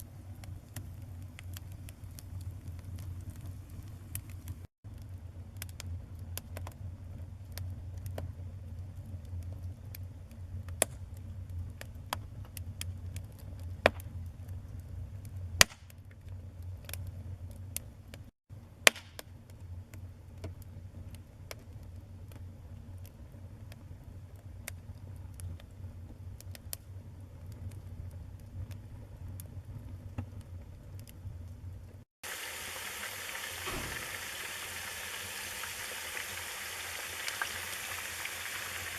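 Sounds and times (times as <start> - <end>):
wood fire burning: 0.0 - 38.9.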